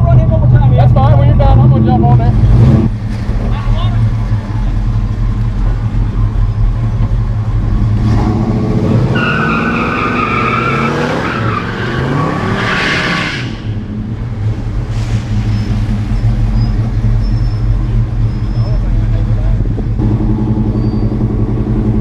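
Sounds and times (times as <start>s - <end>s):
car engine idling: 0.0s - 8.2s, 13.6s - 22.0s
car engine revving: 0.0s - 22.0s
tyres squealing: 9.1s - 13.8s, 15.3s - 19.1s.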